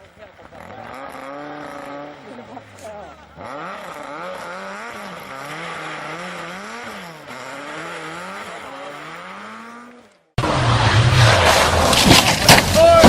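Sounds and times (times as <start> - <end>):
distant rally car engine revving: 0.0 - 13.0
loud rushing with sharp cracks: 10.4 - 13.0.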